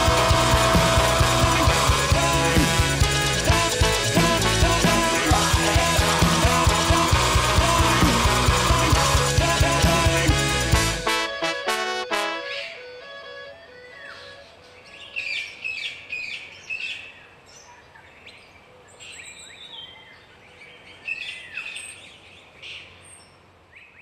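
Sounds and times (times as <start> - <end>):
songbirds chirping and singing: 0.0 - 10.6, 13.7 - 24.0
outdoor background hiss: 9.0 - 24.0.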